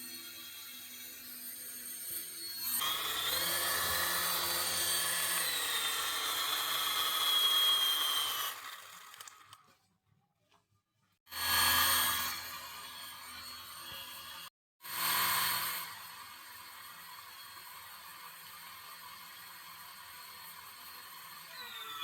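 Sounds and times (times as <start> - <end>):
small electric motor whirring: 0.0 - 9.7, 11.4 - 22.0.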